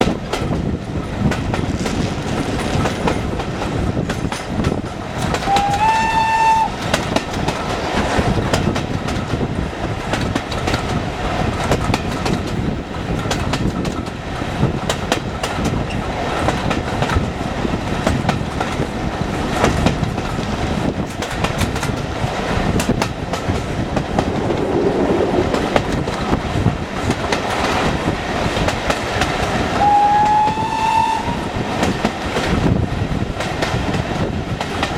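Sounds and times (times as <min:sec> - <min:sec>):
rail-joint clickety-clack: 0:00.0 - 0:34.9
train rumbling on track: 0:00.0 - 0:34.9
train whistle blast: 0:05.5 - 0:06.8, 0:29.8 - 0:31.5.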